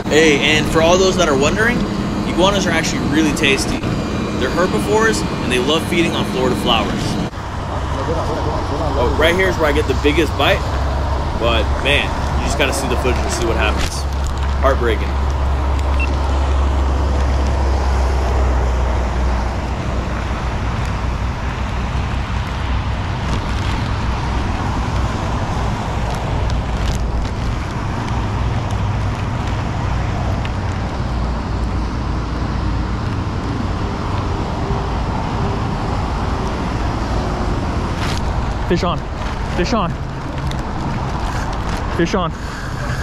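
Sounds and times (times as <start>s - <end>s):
rain on a plastic sheet: 21.6s - 31.8s, 36.1s - 41.9s.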